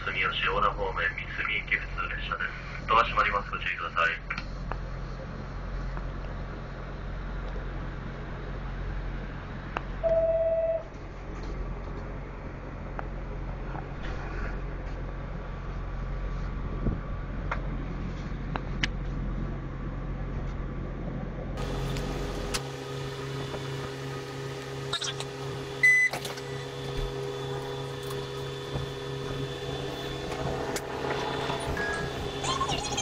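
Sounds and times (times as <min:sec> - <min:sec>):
diesel railcar engine rumbling: 0:00.0 - 0:33.0
short loud beep: 0:10.0 - 0:10.9.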